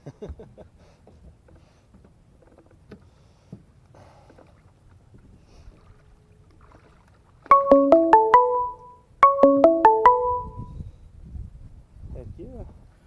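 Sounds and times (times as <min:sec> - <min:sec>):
water lapping: 0:04.1 - 0:07.4.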